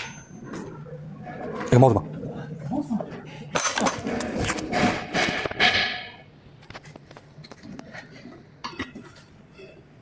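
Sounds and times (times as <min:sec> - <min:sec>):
parts knocking and scraping: 0:03.5 - 0:06.8.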